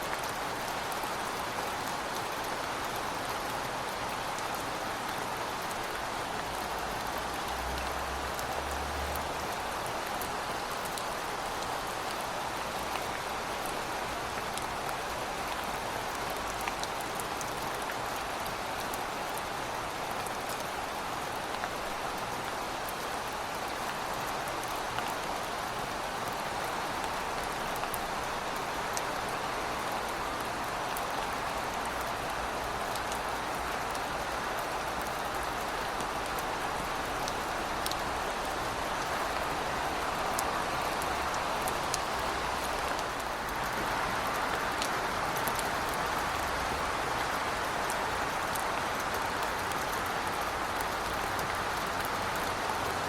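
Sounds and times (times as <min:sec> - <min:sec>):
heavy rain: 0:00.0 - 0:53.0.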